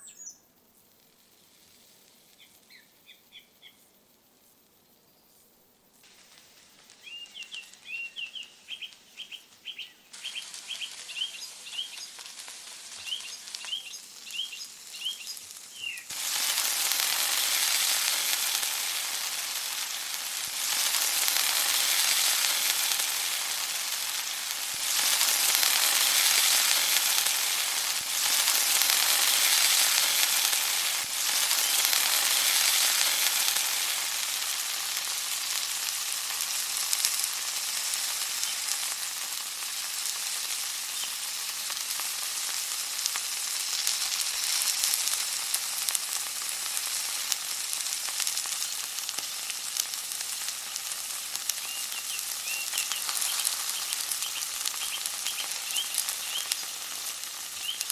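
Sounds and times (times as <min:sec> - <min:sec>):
food sizzling in hot oil: 0:00.0 - 0:03.9, 0:05.9 - 0:57.9.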